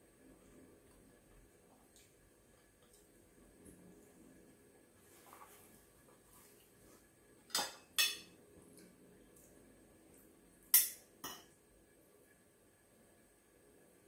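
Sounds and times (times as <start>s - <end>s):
cutlery clinking on plate: 7.5s - 8.3s, 10.8s - 11.5s.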